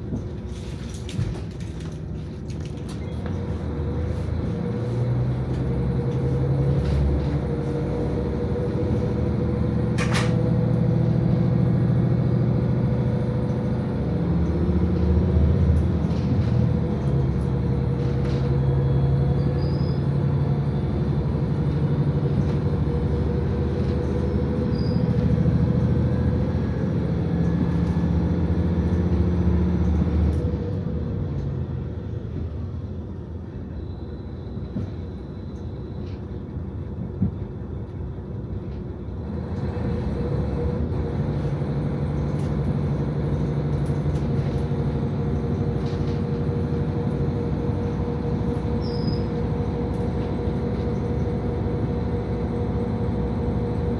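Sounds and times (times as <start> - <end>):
diesel railcar engine droning: 0.0 - 53.9
railcar running rumble: 0.0 - 53.9.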